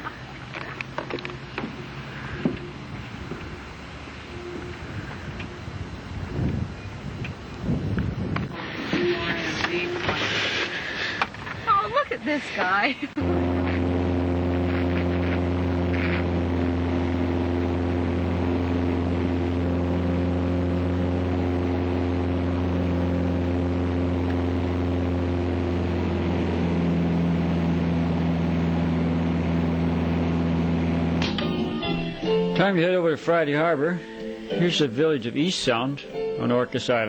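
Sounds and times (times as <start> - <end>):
propeller plane engine drone: 0.0 - 37.0.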